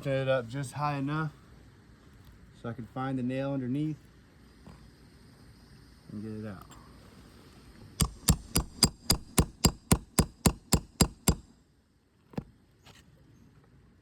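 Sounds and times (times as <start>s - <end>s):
hammer striking metal tool: 8.0s - 11.5s.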